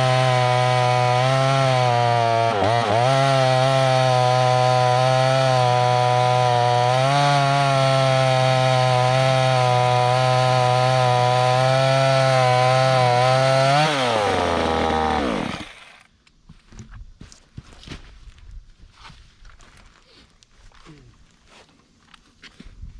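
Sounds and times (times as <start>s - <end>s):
chainsaw cutting log: 0.0s - 16.1s.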